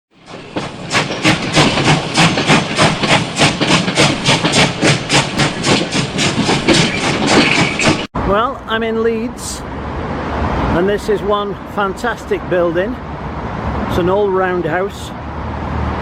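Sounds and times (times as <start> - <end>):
steam locomotive chuffing: 0.1 - 8.1.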